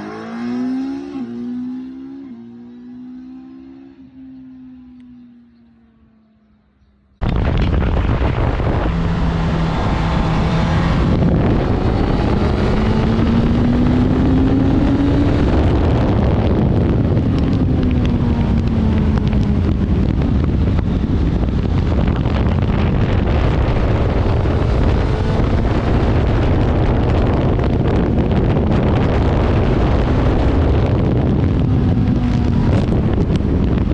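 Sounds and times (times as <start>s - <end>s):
motorcycle engine accelerating: 0.0s - 33.9s
wind rush on microphone: 7.2s - 33.9s.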